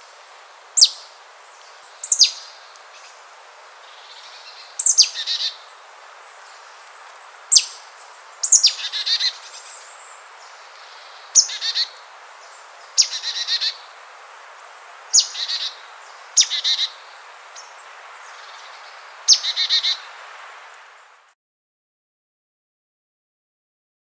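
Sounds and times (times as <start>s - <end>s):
songbird singing: 0.0s - 21.4s
steady hiss: 0.0s - 21.4s.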